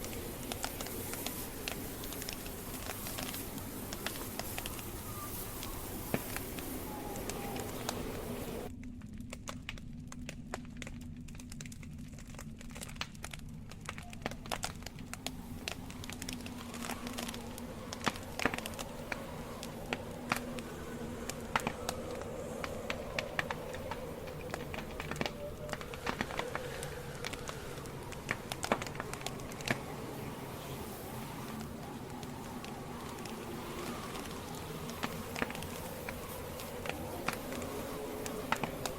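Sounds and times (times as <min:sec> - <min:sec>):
campfire pops and snaps: 0:00.0 - 0:38.9
steady fire hiss: 0:00.0 - 0:38.9.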